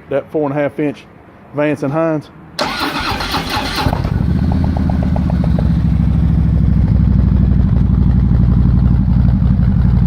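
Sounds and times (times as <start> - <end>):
motorcycle engine idling: 3.7 - 10.0.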